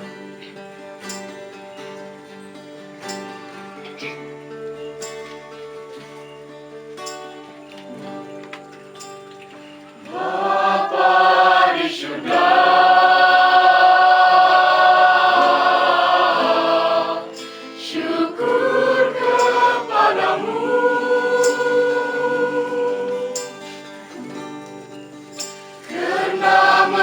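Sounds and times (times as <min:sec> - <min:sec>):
acoustic guitar: 0:00.0 - 0:27.0
voices singing in harmony: 0:10.0 - 0:24.3, 0:25.8 - 0:27.0.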